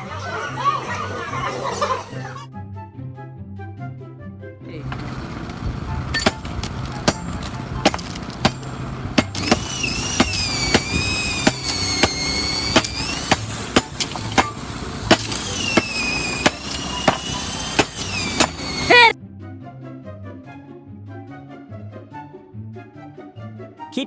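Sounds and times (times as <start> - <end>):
sharp knocks: 6.2 - 18.7.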